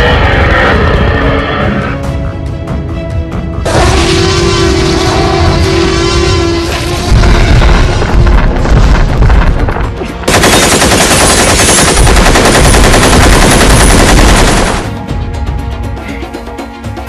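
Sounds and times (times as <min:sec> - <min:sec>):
heavy low rumble: 0:03.5 - 0:10.4
rapid machine-gun fire: 0:10.3 - 0:15.0.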